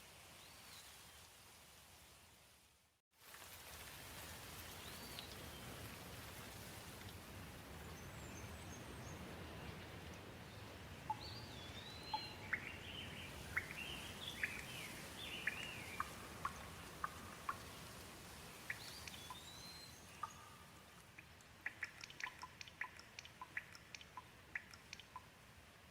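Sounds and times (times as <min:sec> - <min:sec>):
gentle rain falling: 0:00.0 - 0:25.9
bird chirping: 0:11.1 - 0:17.8, 0:18.5 - 0:25.4
sharp ticks: 0:20.2 - 0:25.4.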